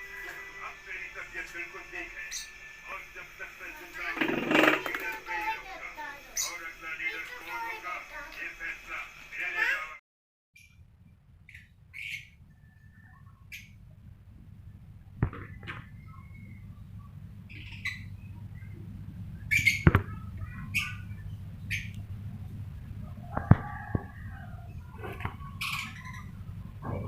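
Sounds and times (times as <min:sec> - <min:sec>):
low steady hum: 0:00.0 - 0:09.4, 0:10.6 - 0:27.0
lovebirds chirping: 0:10.6 - 0:27.0.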